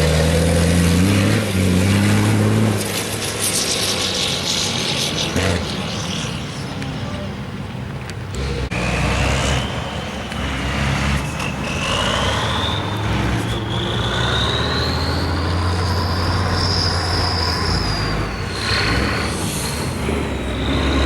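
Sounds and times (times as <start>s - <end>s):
high engine whine: 0.0s - 21.0s
truck engine running hard: 8.2s - 21.0s.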